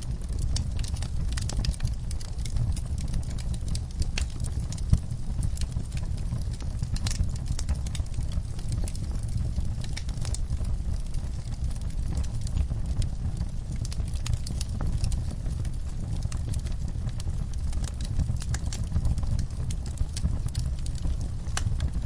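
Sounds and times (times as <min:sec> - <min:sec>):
fire crackling and popping: 0:00.0 - 0:22.0
low rumble of flames: 0:00.0 - 0:22.0.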